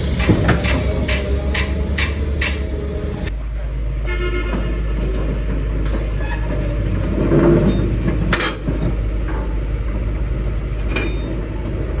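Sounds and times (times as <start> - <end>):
sharp metallic knocks: 0.0 - 2.7
excavator diesel engine running: 0.0 - 12.0.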